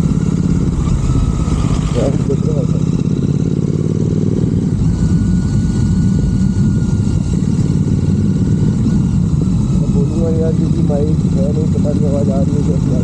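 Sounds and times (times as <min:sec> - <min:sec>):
motorcycle engine deep exhaust note: 0:00.0 - 0:13.0.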